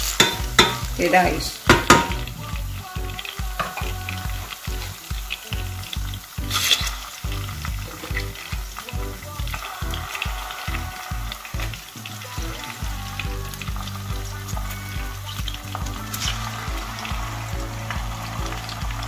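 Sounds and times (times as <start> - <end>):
background music with steady beat: 0.0 - 19.0
food sizzling in hot oil: 0.0 - 19.0.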